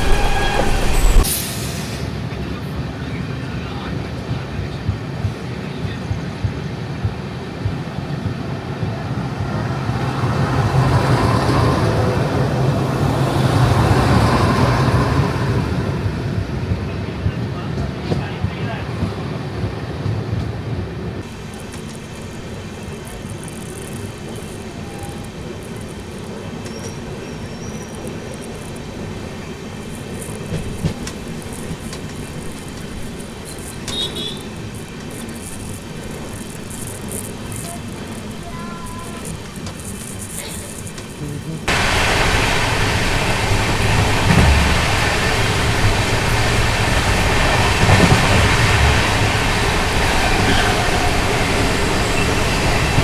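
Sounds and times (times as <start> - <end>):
high squeaks: 0.0 - 1.7, 23.0 - 41.7, 44.0 - 53.0
train rumbling on rails: 0.0 - 53.0.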